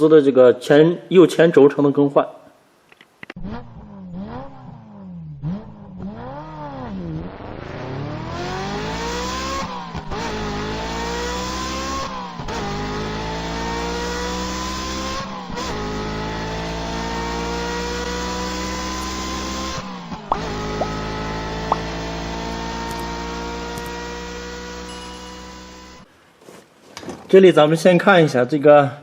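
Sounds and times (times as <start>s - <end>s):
car engine revving and accelerating: 3.4s - 26.1s.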